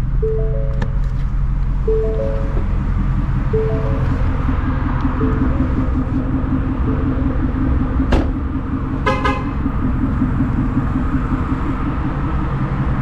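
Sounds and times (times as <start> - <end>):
car engine running: 0.0 - 13.0
car horn toot: 9.0 - 9.6.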